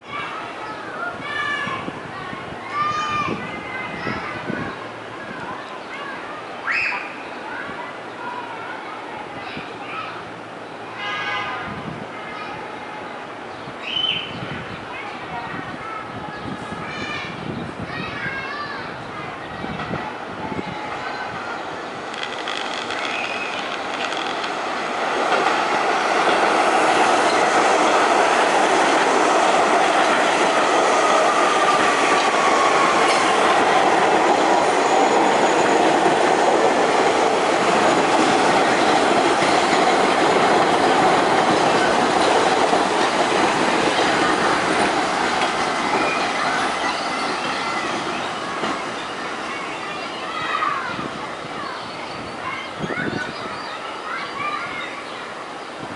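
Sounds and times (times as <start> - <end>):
train wheels rumbling on rails: 14.4 - 53.8
falling whine of train: 18.8 - 55.9
train clatter: 22.0 - 49.8.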